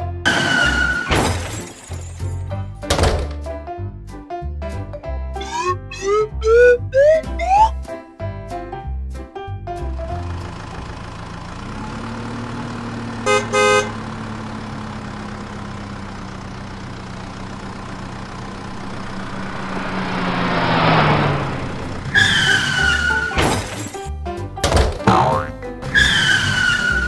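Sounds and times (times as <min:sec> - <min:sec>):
brief high tone: 0:05.4 - 0:07.8
truck engine running: 0:09.8 - 0:24.1
horn honks: 0:13.2 - 0:14.0.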